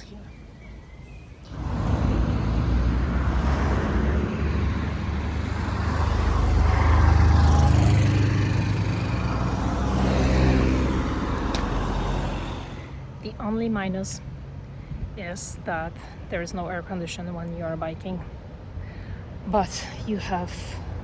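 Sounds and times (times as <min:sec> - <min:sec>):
steady road noise: 0:00.0 - 0:21.0
vehicle engine passing: 0:01.4 - 0:13.2.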